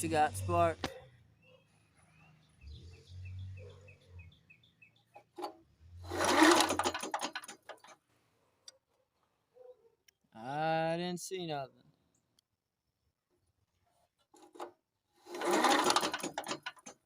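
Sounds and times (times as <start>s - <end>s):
engine turning over whirring: 5.2s - 8.0s, 14.4s - 17.0s
rattling clicks: 5.2s - 8.0s, 14.4s - 17.0s
pull-start rope pulled: 5.4s - 8.0s, 14.4s - 17.0s.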